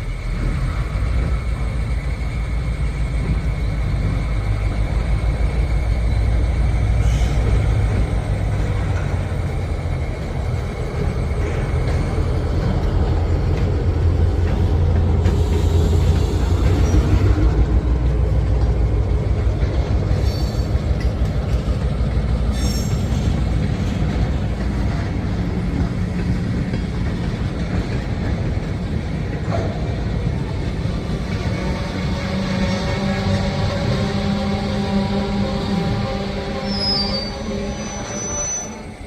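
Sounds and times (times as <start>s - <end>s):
locomotive engine rumble: 0.0s - 39.0s
faint wheel squeals: 36.6s - 39.0s.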